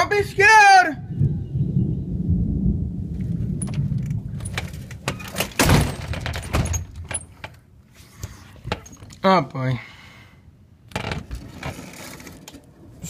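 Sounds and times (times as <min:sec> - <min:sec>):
thunder rumbling: 0:01.0 - 0:07.1
clicks and rattling: 0:03.6 - 0:07.6.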